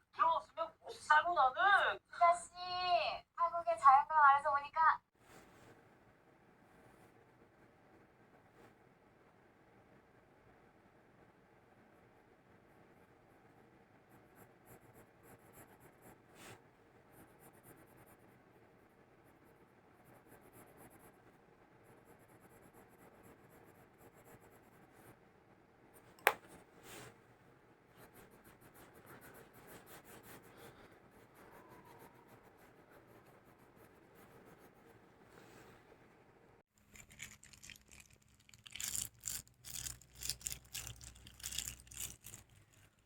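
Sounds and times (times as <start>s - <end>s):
faint rustling and scratching: 25.9s - 36.2s, 36.8s - 43.0s.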